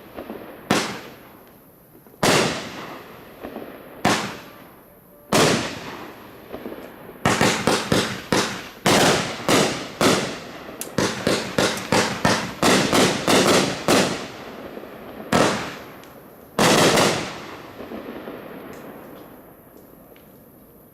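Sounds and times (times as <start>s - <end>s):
fireworks bangs: 0.0s - 1.4s, 2.0s - 20.6s.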